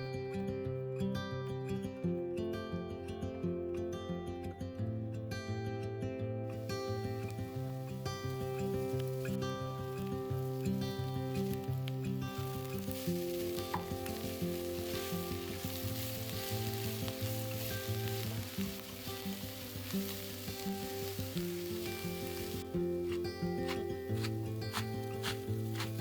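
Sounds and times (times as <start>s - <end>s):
background music: 6.4s - 26.0s
food sizzling in a pan: 6.6s - 26.0s.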